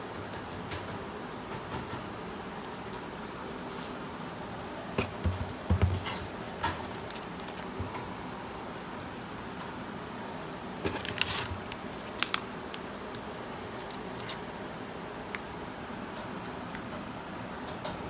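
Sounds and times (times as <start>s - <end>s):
handling clicks and rustles: 5.0s - 8.2s, 10.8s - 15.5s.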